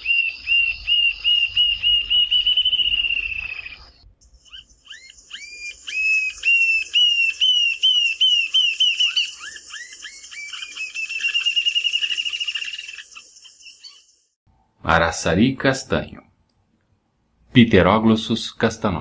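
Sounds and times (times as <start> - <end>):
bird whistling into fast trill: 0.0 - 14.0.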